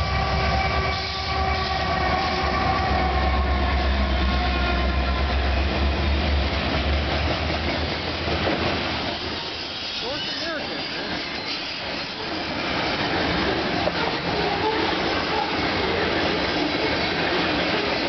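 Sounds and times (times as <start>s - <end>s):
diesel locomotive engine rumble: 0.0s - 18.0s
freight cars rolling on rails: 0.0s - 18.0s.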